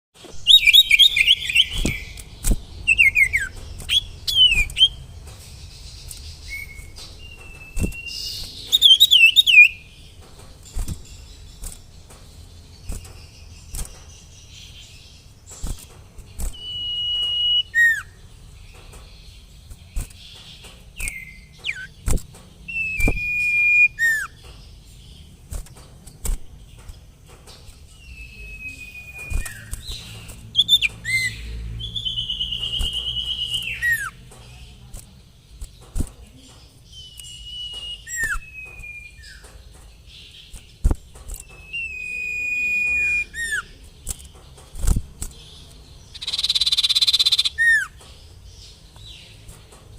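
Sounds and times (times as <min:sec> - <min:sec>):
sharp clicks: 0:00.2 - 0:14.2, 0:29.1 - 0:31.4, 0:43.0 - 0:48.2
bird singing trills and whistles: 0:00.2 - 0:34.8, 0:35.5 - 0:49.4.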